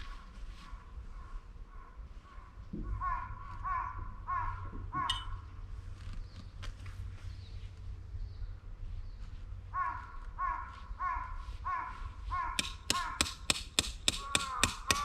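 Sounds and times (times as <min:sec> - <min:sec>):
crow cawing: 0:03.0 - 0:05.4, 0:09.8 - 0:13.4, 0:14.2 - 0:15.0.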